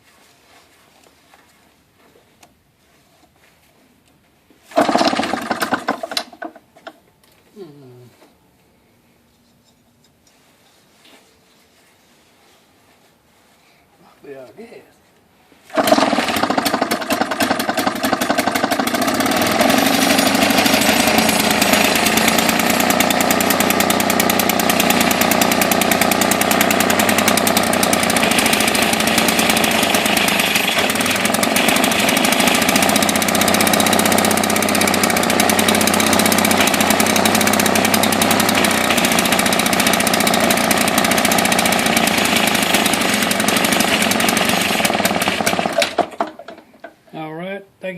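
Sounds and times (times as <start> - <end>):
two-stroke engine starting and running: 4.7 - 7.0, 15.7 - 47.0.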